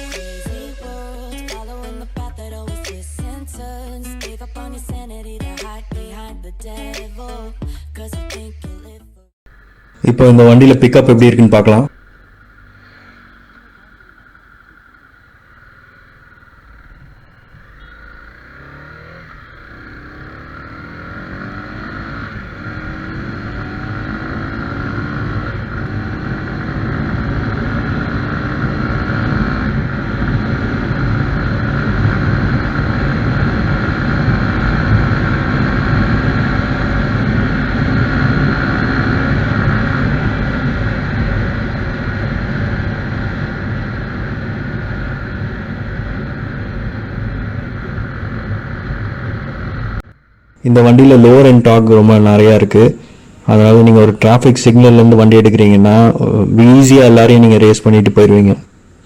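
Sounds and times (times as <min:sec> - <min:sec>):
motorcycle engine accelerating: 0:09.5 - 0:59.0
wind rushing: 0:19.8 - 0:50.0.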